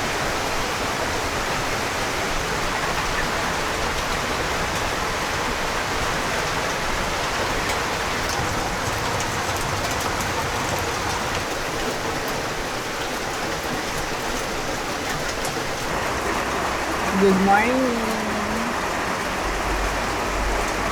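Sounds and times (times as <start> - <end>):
steady rain falling: 0.0 - 20.9.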